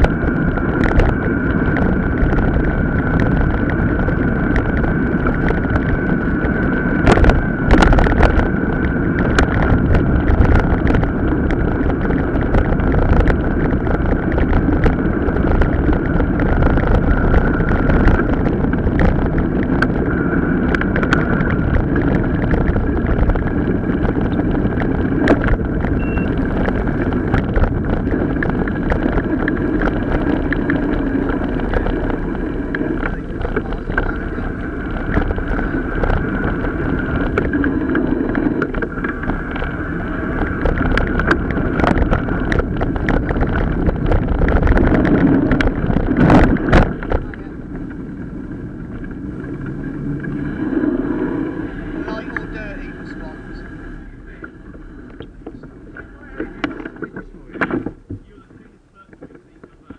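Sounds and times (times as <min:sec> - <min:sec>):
bike rattling and knocking: 0:00.0 - 0:53.4
bike tires rolling rumble: 0:00.0 - 0:59.9
wind noise: 0:00.0 - 0:59.9.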